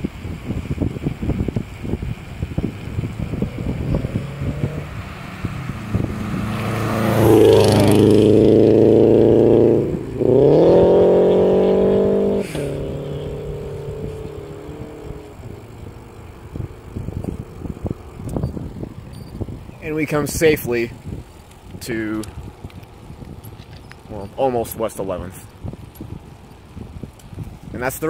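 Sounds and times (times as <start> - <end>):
wind buffeting microphone: 0.0 - 28.0
vehicle engine passing accelerating: 2.6 - 18.2.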